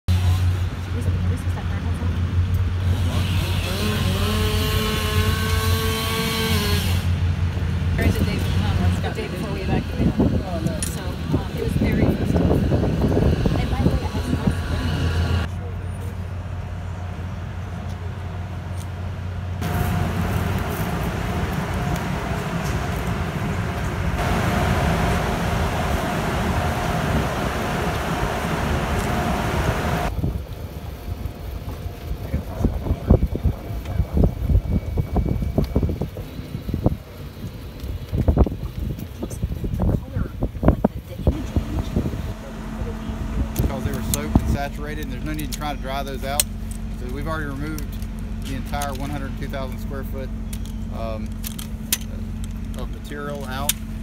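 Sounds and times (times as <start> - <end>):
machinery low hum: 0.1 - 38.3, 40.2 - 54.0
faint steady whine: 15.6 - 37.9
motor whine: 17.6 - 30.4, 41.3 - 54.0.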